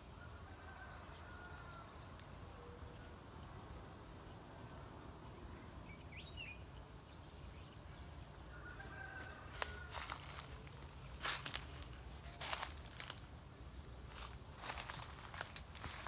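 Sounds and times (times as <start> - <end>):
bird chirp: 4.1 - 8.7
sharp crackles: 9.6 - 13.3, 14.0 - 16.0.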